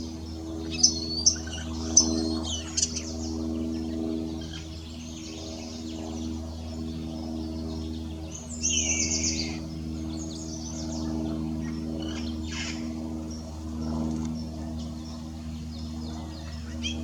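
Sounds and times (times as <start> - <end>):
steady low hum: 0.0 - 17.0
bird chirps: 0.7 - 3.4, 7.8 - 11.2.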